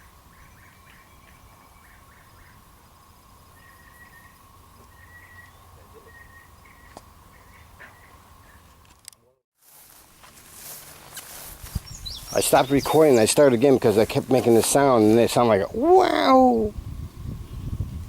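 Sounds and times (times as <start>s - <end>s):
bird chirps: 3.5s - 8.7s, 11.7s - 13.5s.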